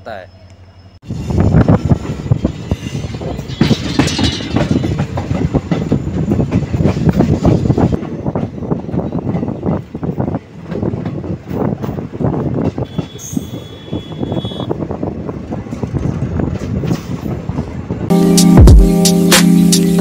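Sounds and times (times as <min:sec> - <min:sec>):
train rumbling on rails: 0:00.0 - 0:19.0
high wheel squeal: 0:12.8 - 0:14.7
background music with a beat: 0:18.1 - 0:20.0.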